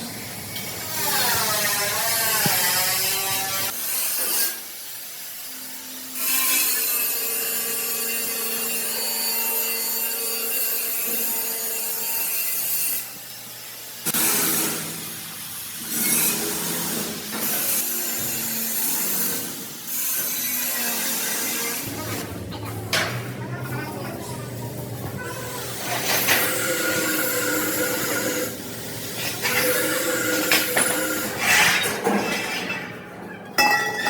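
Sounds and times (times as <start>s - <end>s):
power tool grinding steel: 0.8s - 13.2s, 25.2s - 32.0s.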